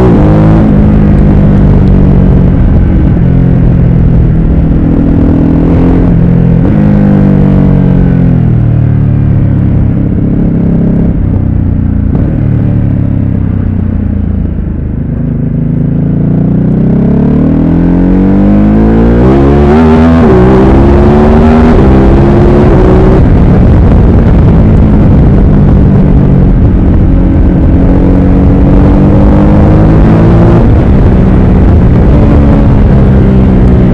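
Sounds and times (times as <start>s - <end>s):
wind rush on microphone: 0.0s - 8.6s, 18.0s - 33.9s
motorcycle engine revving: 0.0s - 33.9s.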